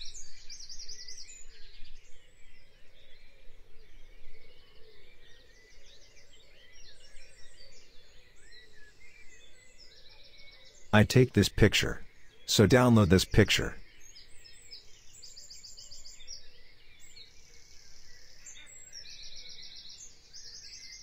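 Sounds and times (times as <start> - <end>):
birds chirping: 11.0 - 13.8.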